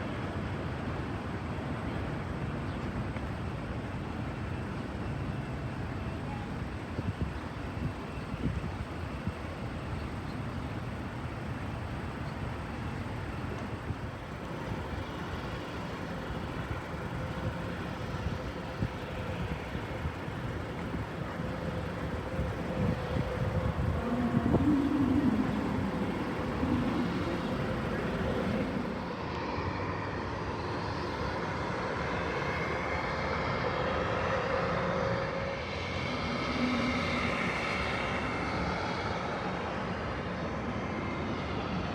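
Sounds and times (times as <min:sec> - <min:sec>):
aircraft engines rumbling: 0:00.0 - 0:41.9.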